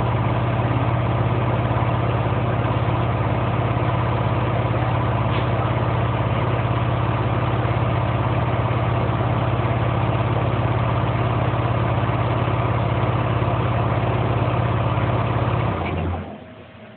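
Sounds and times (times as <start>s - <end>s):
air compressor running: 0.0s - 16.9s.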